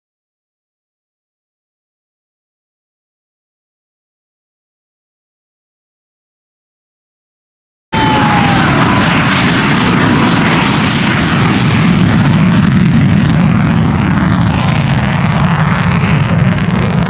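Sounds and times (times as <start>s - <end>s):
aircraft engine flying: 8.0s - 17.0s.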